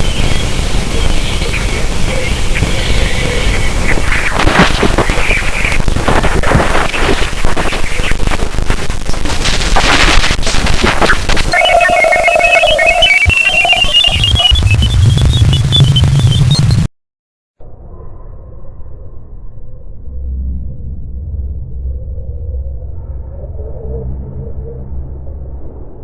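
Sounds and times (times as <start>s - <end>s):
crackling static: 0.0s - 16.9s
electronic beeping tones: 11.0s - 16.9s.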